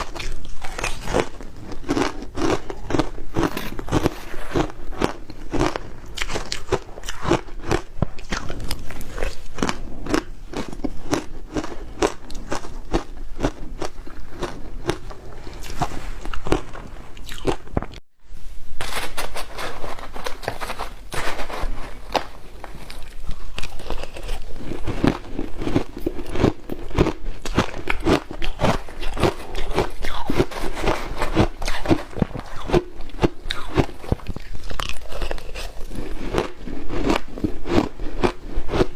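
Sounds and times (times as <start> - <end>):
ice being crunched and chewed: 0.0 - 18.0, 20.4 - 38.9.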